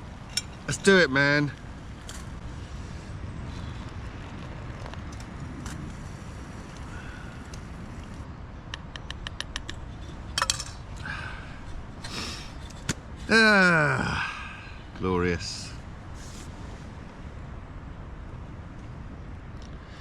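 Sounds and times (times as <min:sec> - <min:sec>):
wind noise: 0:00.0 - 0:20.0.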